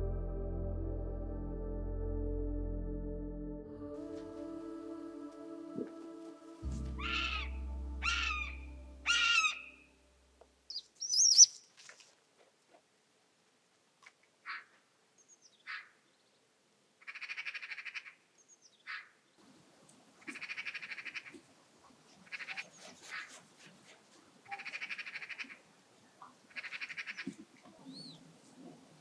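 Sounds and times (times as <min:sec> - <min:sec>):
bird harsh rattling call: 0:07.0 - 0:09.8
thin bird chirps: 0:07.0 - 0:09.8, 0:10.7 - 0:11.8.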